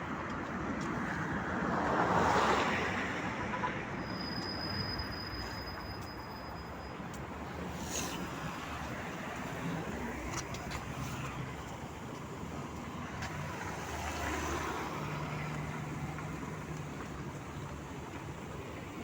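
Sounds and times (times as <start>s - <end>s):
tram wheels and motor rumbling: 4.1s - 19.0s.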